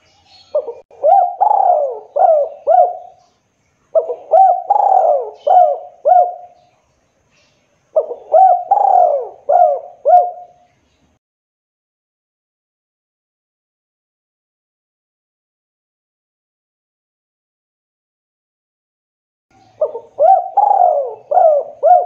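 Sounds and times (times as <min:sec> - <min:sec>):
dove cooing: 0:00.4 - 0:03.3, 0:03.9 - 0:06.6, 0:08.0 - 0:10.7, 0:19.7 - 0:22.0.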